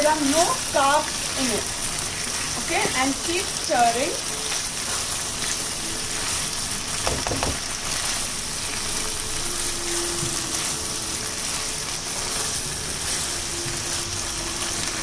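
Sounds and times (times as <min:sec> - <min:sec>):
mince sizzling in frying pan: 0:00.0 - 0:15.0.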